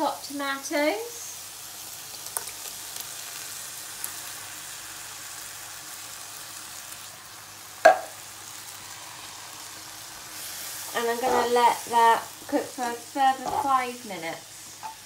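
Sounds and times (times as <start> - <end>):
food sizzling in a frying pan: 0.0 - 15.0
sharp knock: 7.9 - 8.1.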